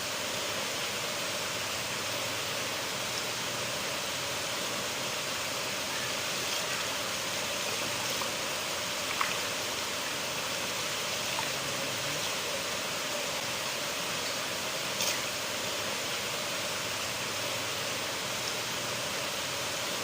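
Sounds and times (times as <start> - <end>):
river water flowing: 0.0 - 20.0
small water splashes and drips: 6.3 - 12.4.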